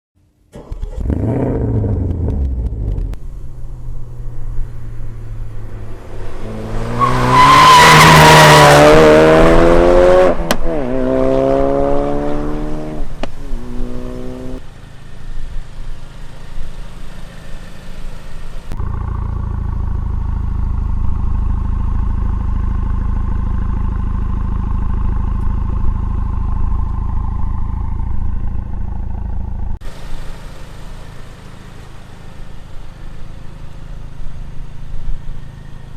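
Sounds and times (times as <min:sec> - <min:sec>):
road noise: 0:00.3 - 0:35.9
car engine accelerating hard: 0:00.5 - 0:15.0.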